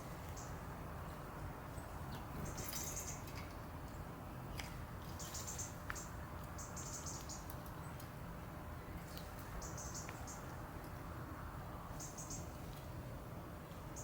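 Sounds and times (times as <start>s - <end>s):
small birds chirping: 0.1s - 8.2s, 8.9s - 11.1s, 11.9s - 12.8s.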